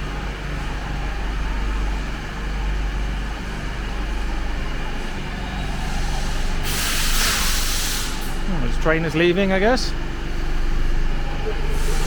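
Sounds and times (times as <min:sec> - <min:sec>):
train electrical hum: 0:00.0 - 0:12.0
compressed air hiss: 0:05.8 - 0:08.5, 0:11.7 - 0:12.0.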